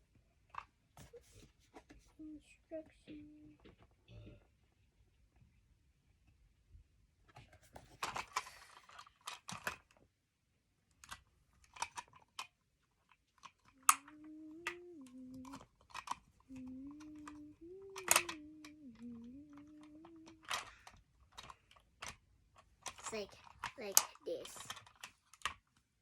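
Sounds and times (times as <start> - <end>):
plastic toy clicks and taps: 18.0 - 18.4.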